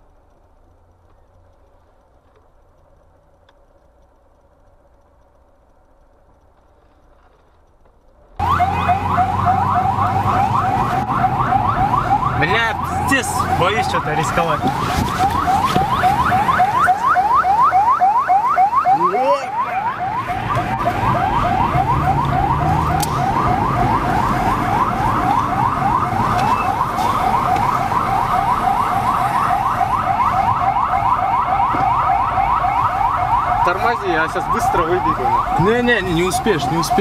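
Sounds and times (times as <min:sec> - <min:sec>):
low vehicle rumble: 0:00.0 - 0:37.0
electronic siren chirping: 0:08.4 - 0:37.0.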